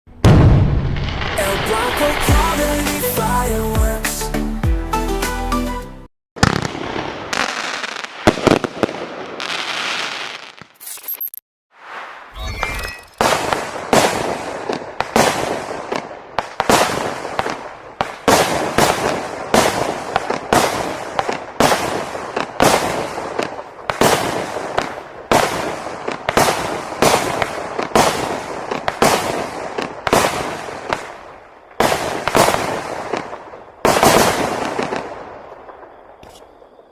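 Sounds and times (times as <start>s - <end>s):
fireworks firing shots: 6.4s - 10.8s, 13.1s - 36.9s.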